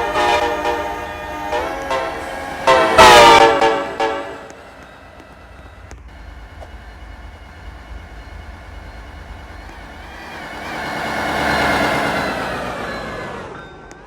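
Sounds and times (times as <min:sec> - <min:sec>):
low road rumble: 0:00.0 - 0:14.0
vehicle passing by: 0:09.3 - 0:13.8.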